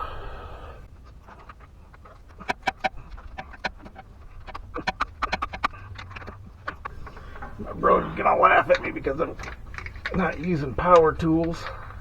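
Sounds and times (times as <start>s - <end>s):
hand tools clinking on metal: 0.9s - 12.0s.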